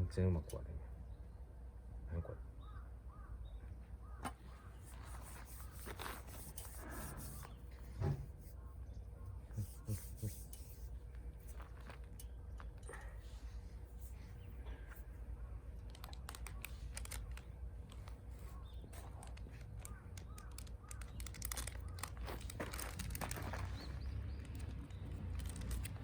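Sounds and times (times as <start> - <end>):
wood crackling and snapping: 15.8 - 26.0.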